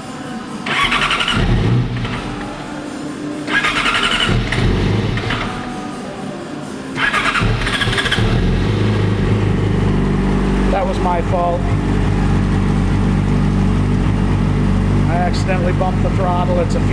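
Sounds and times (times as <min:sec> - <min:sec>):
motorcycle engine running: 0:00.6 - 0:06.0, 0:07.0 - 0:16.9
motorcycle electric starter cranking: 0:00.7 - 0:02.4, 0:03.5 - 0:05.6, 0:07.0 - 0:08.4.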